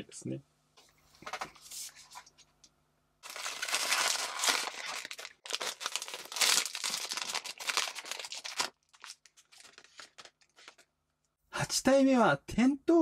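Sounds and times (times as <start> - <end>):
foil bag crinkling and tearing: 3.2 - 10.8.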